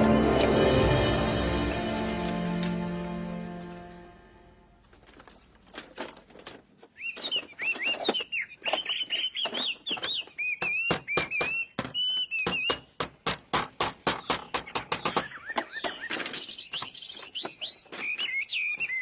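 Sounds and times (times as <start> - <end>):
bird chirping: 6.9 - 13.0, 14.0 - 19.0.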